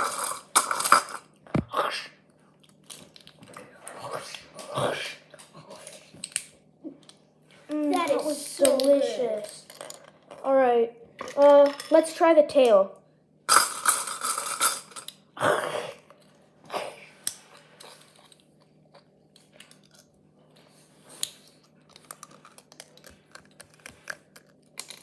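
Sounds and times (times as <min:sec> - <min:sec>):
shell pieces and cutlery clicking: 0:13.5 - 0:15.2, 0:21.2 - 0:25.0.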